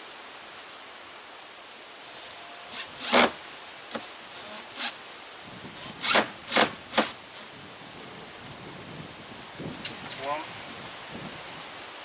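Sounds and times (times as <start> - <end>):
screwdriver scraping screw into wood: 2.7 - 5.0, 5.8 - 7.2.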